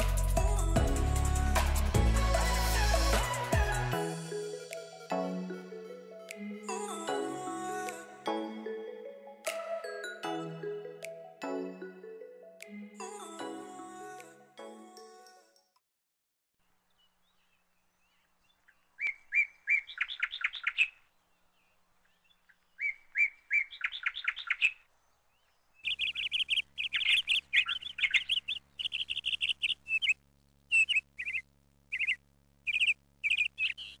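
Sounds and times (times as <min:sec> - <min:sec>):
bird chirping: 0:16.9 - 0:34.0
steady low hum: 0:24.8 - 0:34.0.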